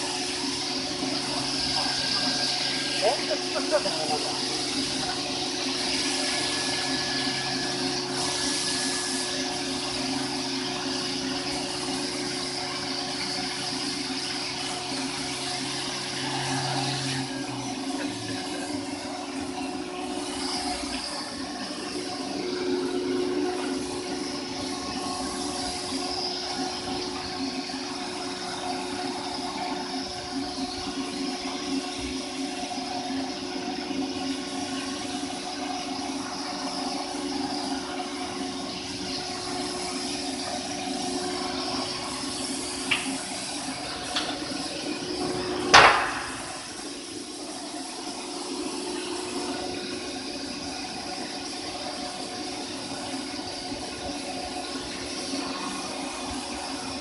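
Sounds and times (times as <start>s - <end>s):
stone machining center humming: 0.0s - 57.0s
water coolant spraying: 0.0s - 57.0s
loud sharp knock: 45.7s - 46.3s.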